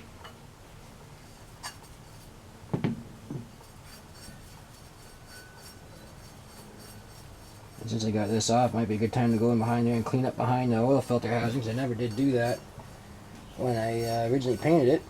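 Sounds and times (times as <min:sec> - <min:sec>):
dull knocks of parts: 0:02.7 - 0:03.5.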